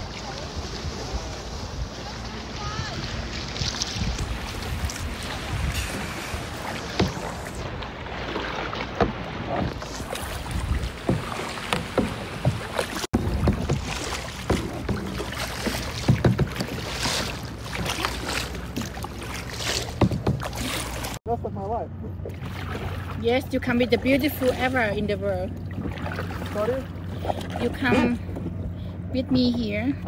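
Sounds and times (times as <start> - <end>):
wind buffeting microphone: 0.0 - 8.0, 9.6 - 14.0
water splashing around kayak: 0.0 - 21.4, 22.0 - 30.0.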